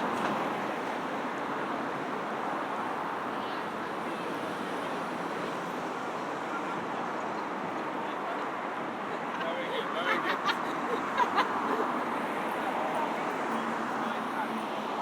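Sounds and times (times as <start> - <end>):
passing road traffic: 0.0 - 15.0.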